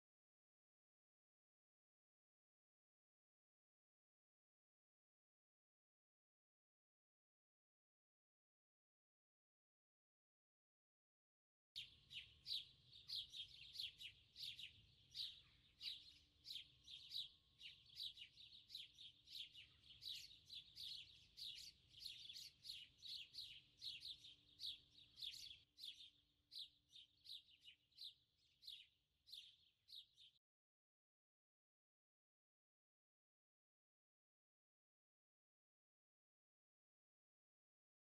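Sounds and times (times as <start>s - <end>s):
small birds chirping: 11.8s - 30.5s.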